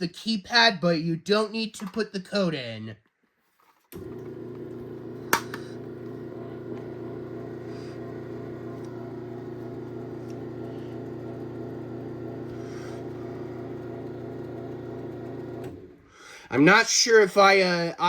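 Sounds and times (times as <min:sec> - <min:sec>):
garage door opener motor humming: 0:04.0 - 0:16.0.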